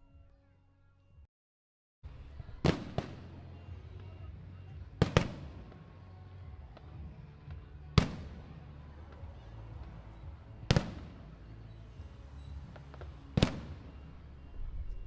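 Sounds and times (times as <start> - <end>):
fireworks bangs: 2.6 - 6.0, 6.6 - 15.0.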